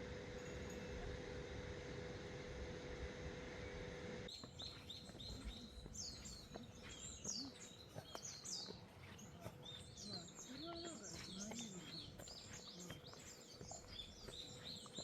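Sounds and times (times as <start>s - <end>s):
steady hum with faint tone: 0.0s - 7.8s
songbirds chirping: 0.0s - 15.0s.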